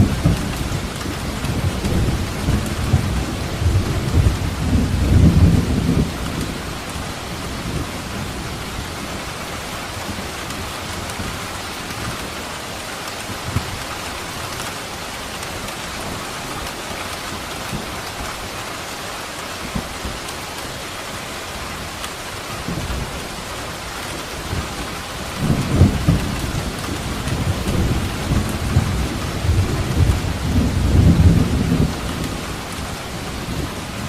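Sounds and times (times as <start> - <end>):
thunder rumbling: 0.0 - 9.2, 22.6 - 34.0
rain falling on surface: 0.0 - 34.0.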